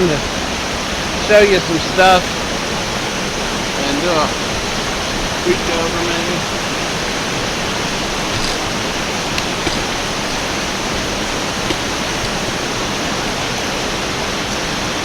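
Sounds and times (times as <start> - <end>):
waterfall rushing: 0.0 - 15.0
faint clicks: 4.5 - 13.1.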